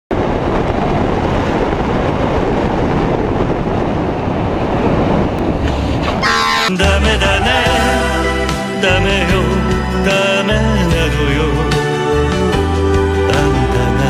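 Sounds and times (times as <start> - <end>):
loud rushing rumble: 0.1 - 10.1
melodic music: 6.2 - 14.0.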